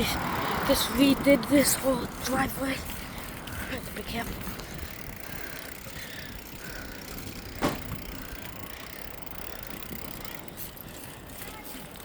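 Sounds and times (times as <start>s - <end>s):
bicycle tyre noise: 0.0s - 12.0s
bicycle knocking over bump: 6.4s - 10.4s.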